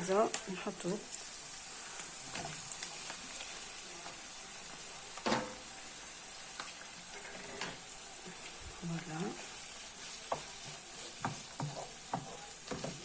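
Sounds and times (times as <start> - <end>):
food sizzling in a frying pan: 0.0 - 13.0
utensil knocking against a pan: 11.2 - 13.0.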